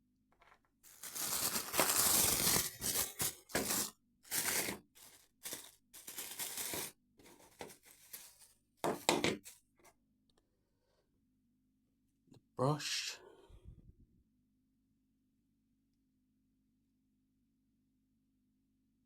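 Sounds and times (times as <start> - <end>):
plastic packaging tearing and crinkling: 0.9 - 9.6.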